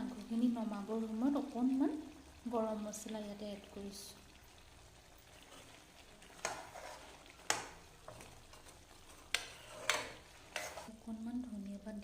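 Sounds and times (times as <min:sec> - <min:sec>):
faint sizzle: 0:00.0 - 0:12.0
spoon stirring in a pot: 0:05.1 - 0:10.9.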